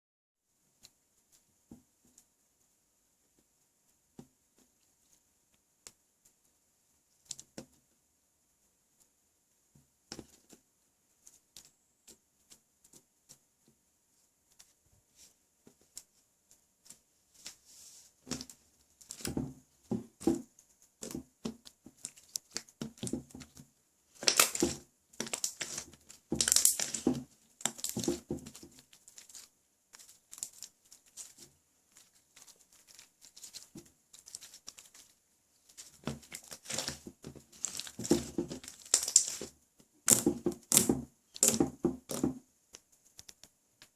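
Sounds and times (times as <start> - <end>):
slime squished by hand: 24.2 - 31.3.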